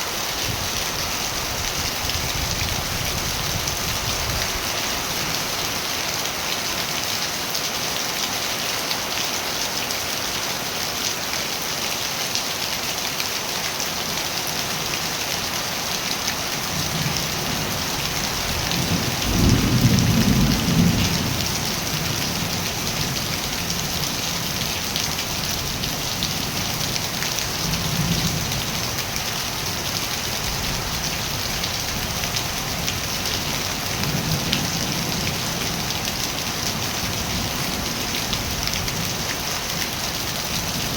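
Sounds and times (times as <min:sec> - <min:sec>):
steady rain falling: 0:00.0 - 0:40.9
thunder rumbling: 0:18.3 - 0:22.5.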